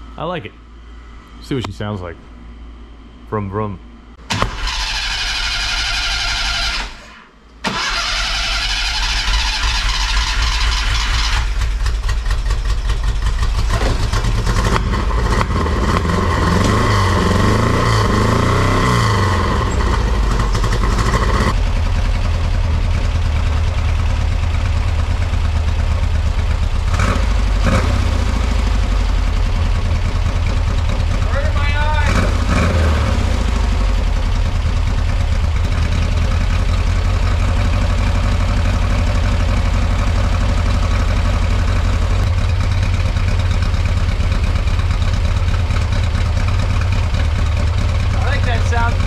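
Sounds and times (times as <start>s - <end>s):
starter motor cranking: 4.3s - 11.7s
car engine idling: 7.6s - 49.0s.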